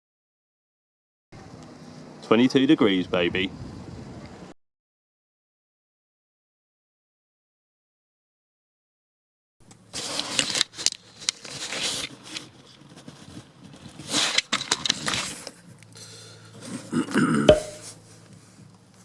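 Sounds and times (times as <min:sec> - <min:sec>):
rustling and scraping at microphone: 0:09.9 - 0:15.6
sharp knock: 0:17.5 - 0:17.9.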